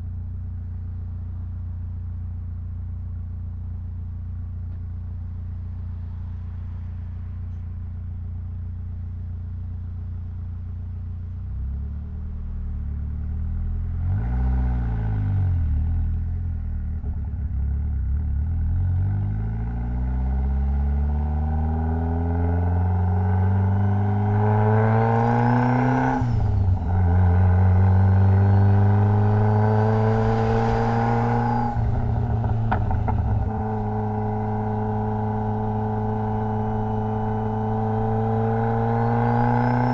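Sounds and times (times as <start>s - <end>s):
car engine revving and accelerating: 13.8s - 16.2s, 18.0s - 39.9s.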